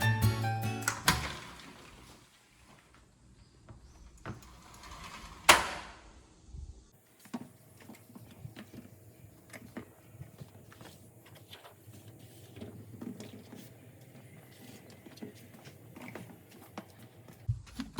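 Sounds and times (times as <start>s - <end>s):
background music: 0.0s - 1.5s.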